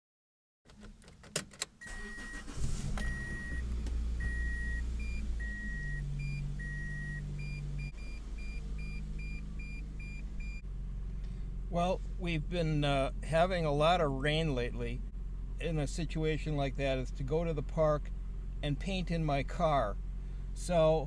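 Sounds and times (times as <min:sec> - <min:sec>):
car engine starting and idling: 0:00.7 - 0:21.0
dashboard warning chime beeping: 0:01.8 - 0:10.6.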